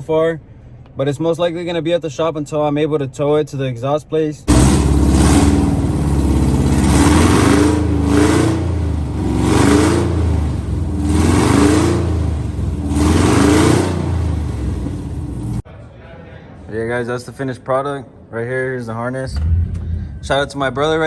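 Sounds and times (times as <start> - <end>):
loud rough car engine surging: 4.5 - 15.6.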